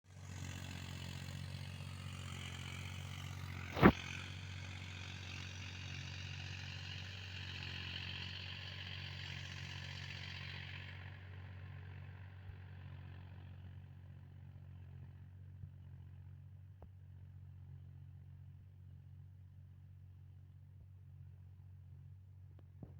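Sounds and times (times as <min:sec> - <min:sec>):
tractor engine running: 0:00.1 - 0:17.2
sharp loud click: 0:03.7 - 0:04.0.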